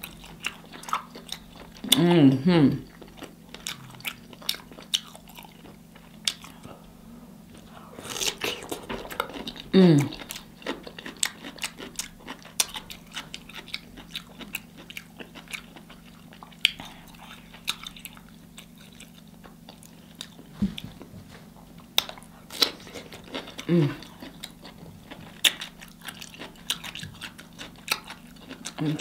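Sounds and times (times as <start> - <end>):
chewing crunchy food: 0.0 - 6.9, 7.5 - 21.1, 21.7 - 29.0
person humming: 1.9 - 2.8, 9.7 - 10.2, 23.6 - 24.0.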